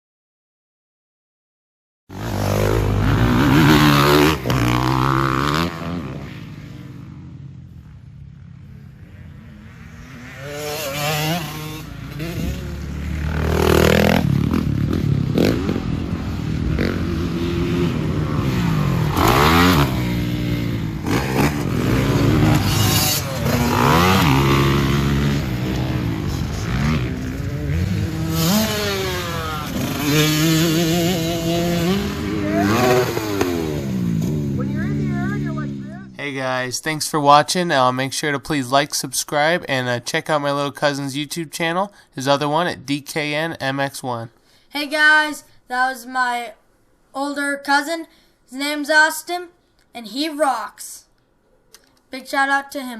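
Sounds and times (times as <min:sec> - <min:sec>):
dirt bike engine revving: 0:02.1 - 0:36.4.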